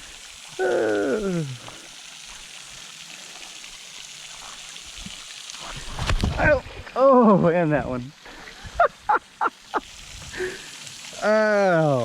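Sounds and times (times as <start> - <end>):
waterfall rushing: 5.7 - 12.0
man's drawn-out exclamation: 11.2 - 12.0.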